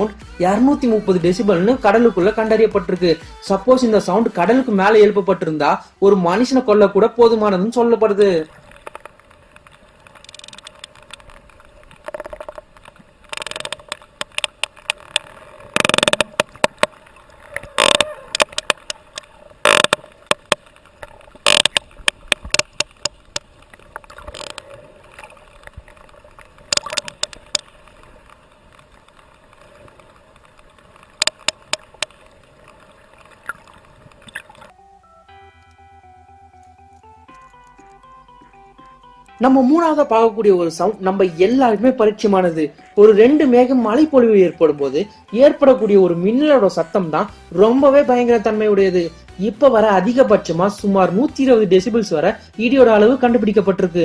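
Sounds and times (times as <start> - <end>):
sperm whale clicks underwater: 8.2 - 34.7.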